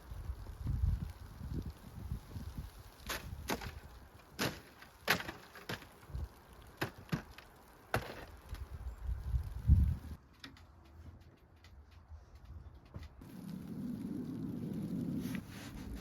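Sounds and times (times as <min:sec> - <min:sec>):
dry wood cracking and splintering: 0:00.1 - 0:10.8.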